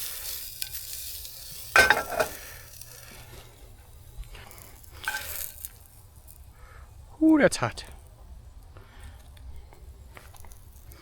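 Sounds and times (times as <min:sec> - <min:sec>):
sausages sizzling in a frying pan: 0:00.0 - 0:11.0
spatula clattering against pan: 0:01.8 - 0:02.4.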